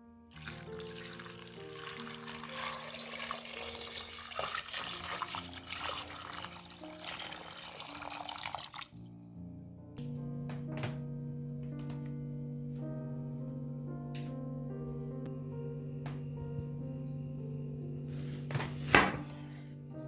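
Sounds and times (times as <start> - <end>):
background music: 0.2 - 20.0
water running from a tap: 0.3 - 9.4.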